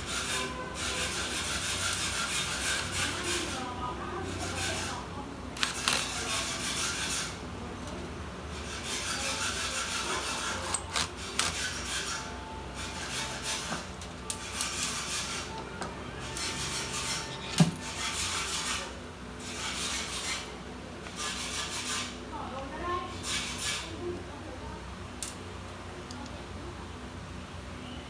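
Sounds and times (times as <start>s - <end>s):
scraping plastic and metal parts: 5.6s - 7.2s, 9.8s - 12.2s.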